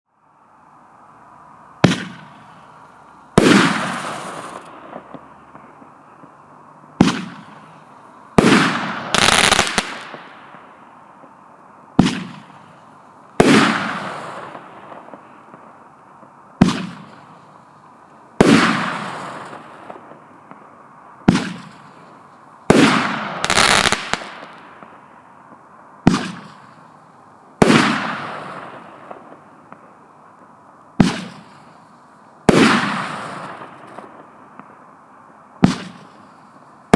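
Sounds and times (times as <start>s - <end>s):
firework bangs: 1.8s - 6.4s, 7.0s - 11.4s, 12.0s - 17.5s, 18.4s - 25.0s, 26.0s - 26.9s, 27.6s - 30.0s, 31.0s - 31.8s, 32.4s - 34.8s, 35.6s - 36.4s.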